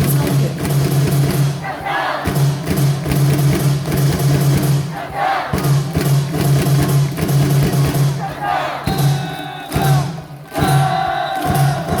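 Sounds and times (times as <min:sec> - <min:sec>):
crowd cheering and chanting: 0:00.0 - 0:03.0, 0:04.6 - 0:06.2, 0:07.8 - 0:12.0
amplified music with drum beat: 0:00.0 - 0:12.0
people shouting: 0:01.6 - 0:02.3, 0:05.0 - 0:05.6, 0:08.2 - 0:12.0.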